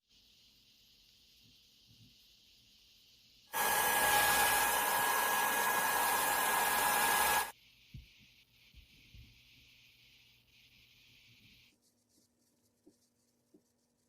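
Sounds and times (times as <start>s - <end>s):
aerosol can spraying: 3.5s - 8.1s.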